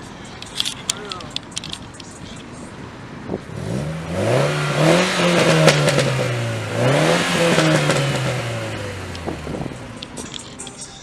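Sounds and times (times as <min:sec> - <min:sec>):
car engine accelerating hard: 0:02.8 - 0:10.6.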